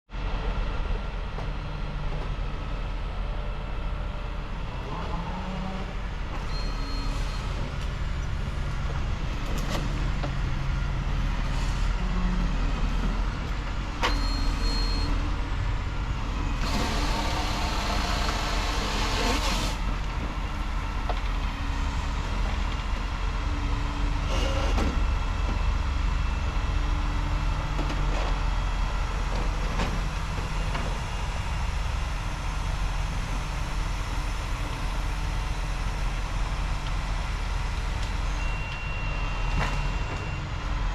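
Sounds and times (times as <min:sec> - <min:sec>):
truck engine running: 0:15.6 - 0:21.6
hissing burst: 0:16.6 - 0:19.8.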